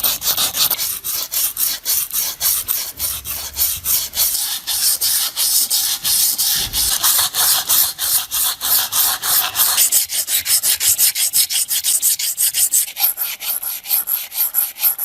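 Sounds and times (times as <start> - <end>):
abrasive rubbing on metal: 0.0 - 11.2.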